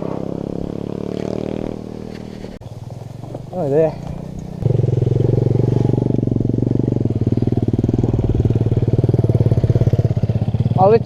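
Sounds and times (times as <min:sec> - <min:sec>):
small motorbike engine running: 0:03.6 - 0:11.0.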